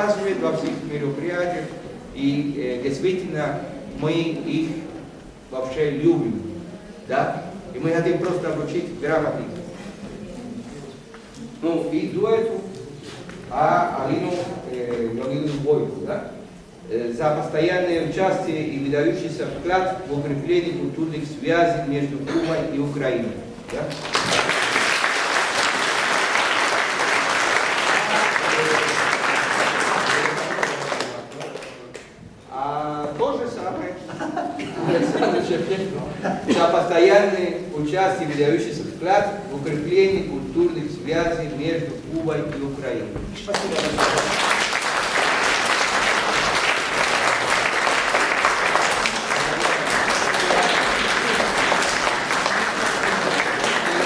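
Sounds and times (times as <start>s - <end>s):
audience applauding: 23.9s - 32.0s, 43.5s - 54.0s.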